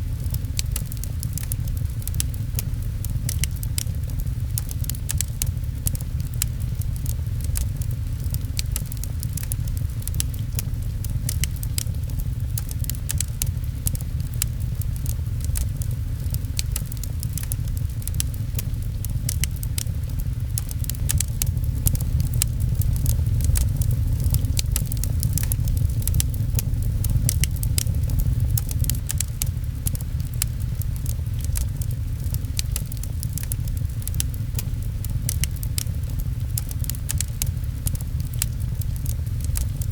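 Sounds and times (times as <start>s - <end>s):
fireplace crackling: 0.0s - 39.9s
rain on a window: 0.0s - 39.9s.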